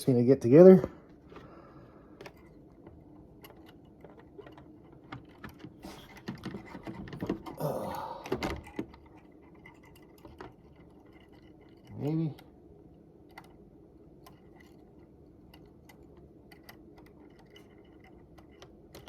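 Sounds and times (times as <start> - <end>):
small plastic clicks: 14.2 - 19.0.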